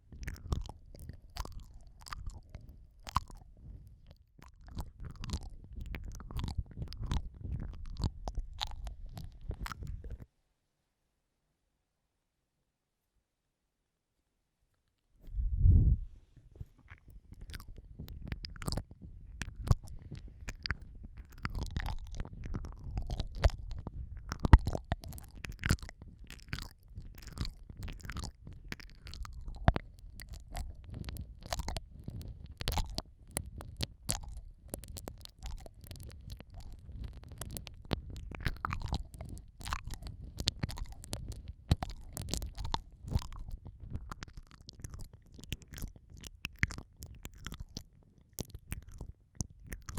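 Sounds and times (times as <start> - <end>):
sharp wet clicks: 0.0 - 10.2, 16.8 - 49.9
wet mouth licking and sucking: 0.0 - 10.2, 16.8 - 49.9
low rumble: 15.2 - 16.2.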